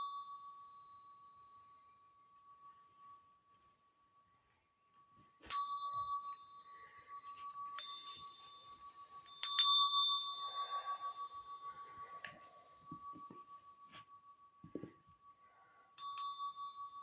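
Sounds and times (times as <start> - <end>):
small bell ringing: 0.0 - 2.6, 5.5 - 17.0
faint steady ringing tone: 0.0 - 17.0.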